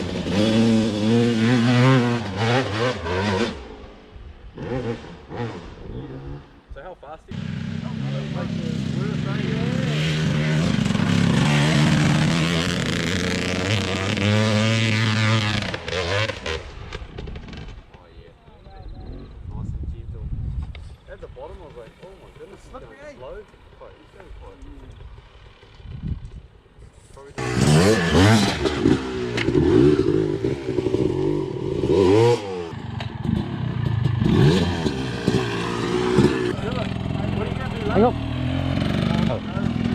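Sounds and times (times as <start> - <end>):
off-road vehicle engine revving: 0.0 - 6.7, 7.3 - 17.8, 27.2 - 39.9.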